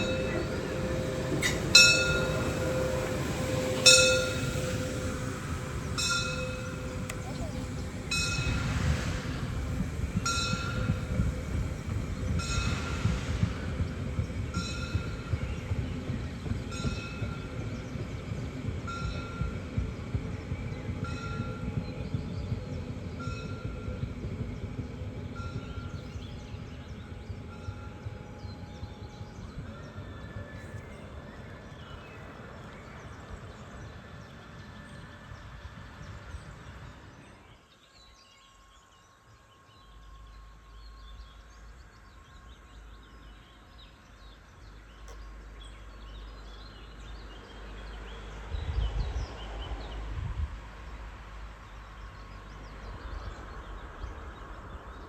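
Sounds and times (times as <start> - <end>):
faint whining electric motors: 0.0 - 15.9
wind rumble on microphone: 0.0 - 37.6, 45.6 - 55.0.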